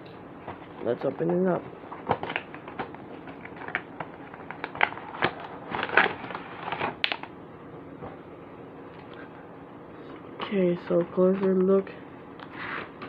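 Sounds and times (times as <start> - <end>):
packaging being torn open: 2.0 - 7.3.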